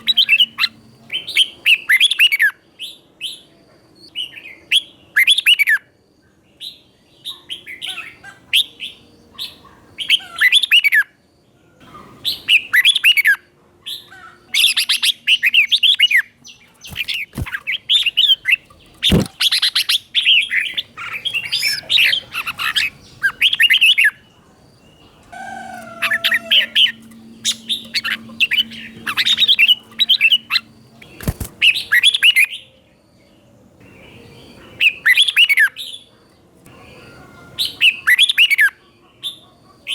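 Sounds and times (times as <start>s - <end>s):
bird singing warbling phrases: 0.0s - 5.8s, 11.8s - 32.8s.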